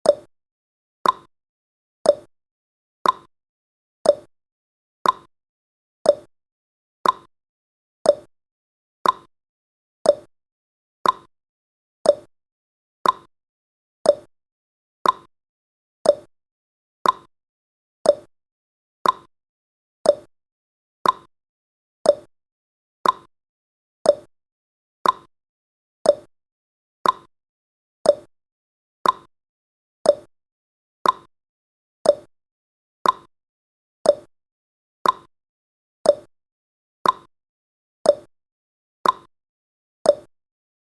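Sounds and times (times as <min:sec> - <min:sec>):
timer ticking: 0:00.0 - 0:00.3, 0:01.0 - 0:01.3, 0:02.0 - 0:02.3, 0:03.0 - 0:03.3, 0:04.0 - 0:04.3, 0:05.0 - 0:05.3, 0:06.0 - 0:06.3, 0:07.0 - 0:07.3, 0:08.0 - 0:08.3, 0:09.0 - 0:09.3, 0:10.0 - 0:10.3, 0:11.0 - 0:11.3, 0:12.0 - 0:12.3, 0:13.0 - 0:13.3, 0:14.0 - 0:14.3, 0:15.0 - 0:15.3, 0:16.0 - 0:16.3, 0:17.0 - 0:17.3, 0:18.0 - 0:18.3, 0:19.0 - 0:19.3, 0:20.0 - 0:20.3, 0:21.0 - 0:21.3, 0:22.0 - 0:22.3, 0:23.0 - 0:23.3, 0:24.0 - 0:24.3, 0:25.0 - 0:25.3, 0:26.0 - 0:26.3, 0:27.0 - 0:27.3, 0:28.0 - 0:28.3, 0:29.0 - 0:29.3, 0:30.0 - 0:30.3, 0:31.0 - 0:31.3, 0:32.0 - 0:32.3, 0:33.0 - 0:33.3, 0:34.0 - 0:34.3, 0:35.0 - 0:35.3, 0:36.0 - 0:36.3, 0:37.0 - 0:37.3, 0:38.1 - 0:38.3, 0:39.0 - 0:39.3, 0:40.1 - 0:40.3.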